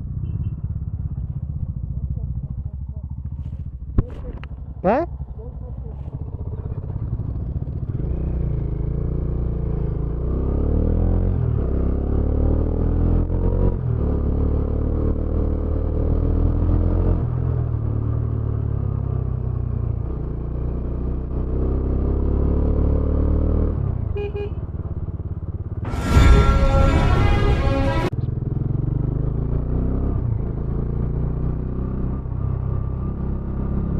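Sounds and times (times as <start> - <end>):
loud rush of noise: 25.9 - 28.1.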